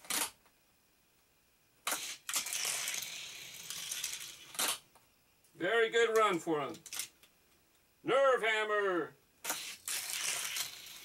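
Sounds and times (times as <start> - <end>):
toy car rolling on plastic track: 1.8 - 4.8, 9.4 - 11.0.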